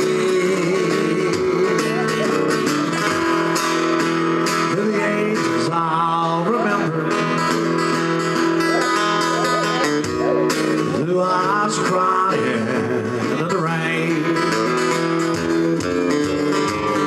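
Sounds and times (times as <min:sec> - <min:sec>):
guitar playing country ballad: 0:00.0 - 0:17.0.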